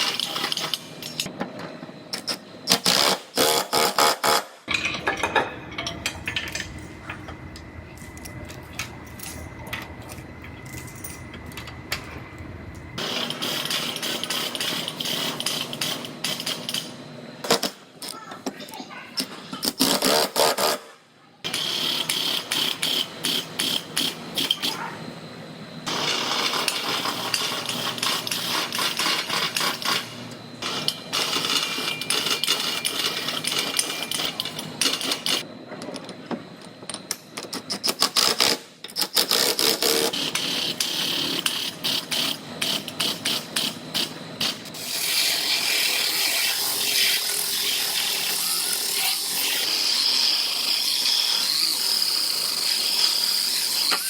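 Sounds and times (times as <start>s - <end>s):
power tool high whir: 44.5s - 54.0s.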